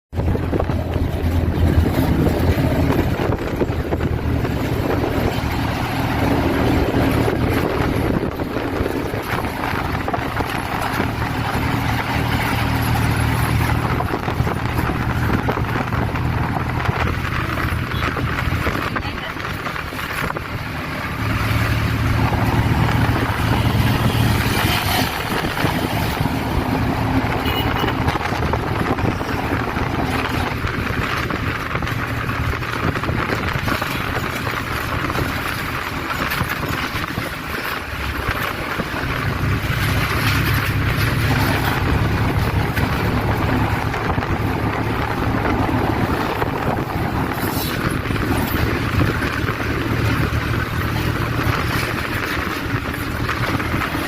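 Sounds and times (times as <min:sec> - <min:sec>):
wind noise on microphone: 0:00.1 - 0:54.0.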